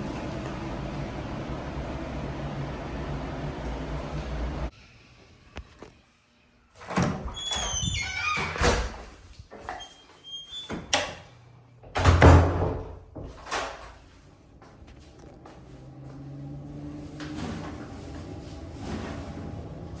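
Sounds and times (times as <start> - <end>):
squeaky door hinge: 7.3 - 8.9.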